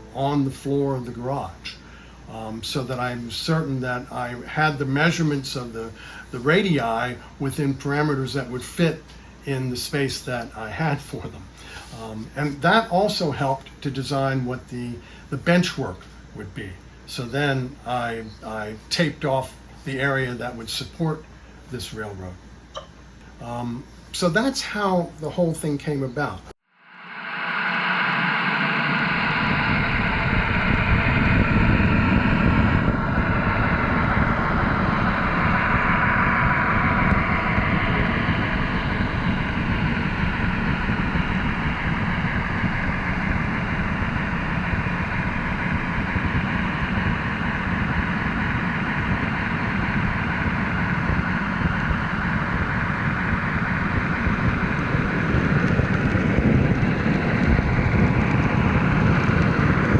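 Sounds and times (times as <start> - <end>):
steady rumbling noise: 0.0 - 59.9.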